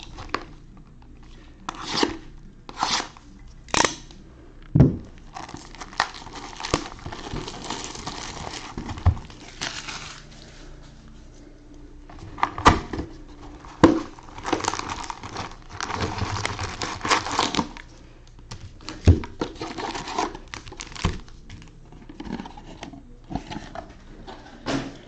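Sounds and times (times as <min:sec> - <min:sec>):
plastic wrap crinkling and tearing: 0:05.2 - 0:10.6, 0:13.2 - 0:21.8.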